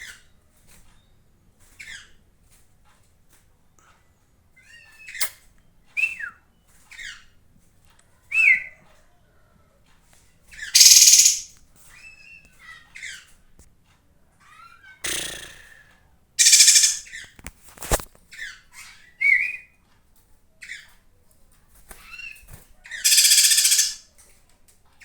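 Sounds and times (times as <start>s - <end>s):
harsh rasping bird call: 10.8s - 11.5s, 16.4s - 17.1s, 23.0s - 24.0s
songbird whistled notes: 10.8s - 11.5s, 16.4s - 17.0s, 23.0s - 24.0s.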